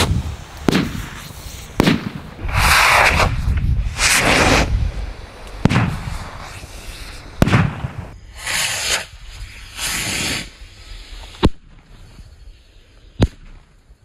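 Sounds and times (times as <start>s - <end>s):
firework bangs: 0.0s - 4.8s, 5.6s - 10.6s
firework hissing spurts: 0.0s - 14.0s.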